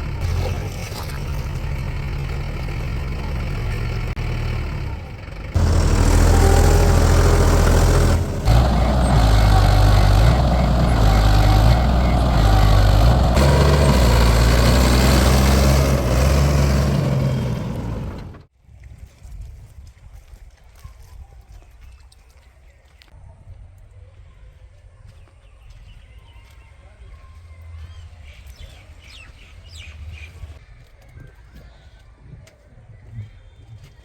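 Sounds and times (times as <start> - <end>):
heavy diesel engine running: 0.0 - 18.5.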